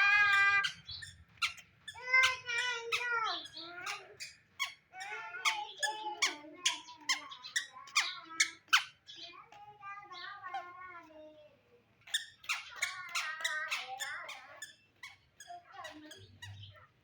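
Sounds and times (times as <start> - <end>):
toddler squealing and babbling: 0.0 - 9.0, 12.0 - 16.6.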